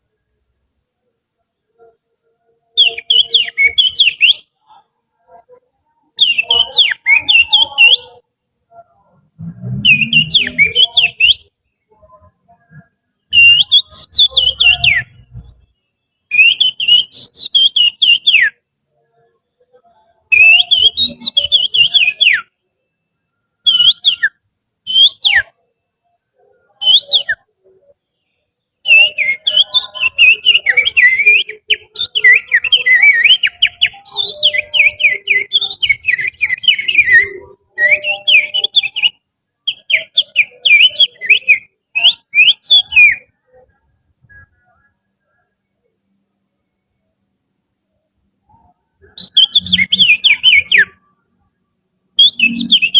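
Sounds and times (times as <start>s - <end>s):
finger whistling chirps: 13.4s - 15.2s, 28.9s - 43.3s, 48.5s - 51.0s, 52.2s - 52.9s.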